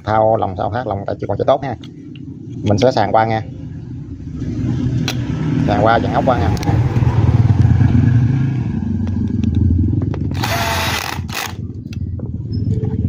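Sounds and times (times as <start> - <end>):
steady low rumble: 0.0 - 13.0
power screwdriver running: 10.3 - 11.6.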